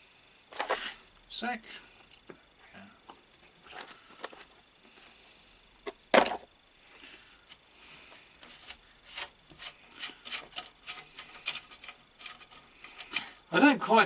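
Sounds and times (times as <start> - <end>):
metal scraping and rubbing: 8.4 - 13.4.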